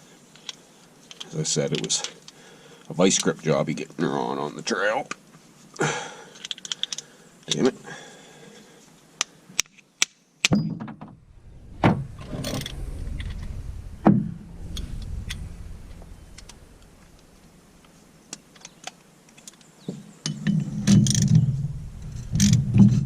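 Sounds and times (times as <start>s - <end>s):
low rumble: 11.1s - 18.3s, 20.6s - 23.0s.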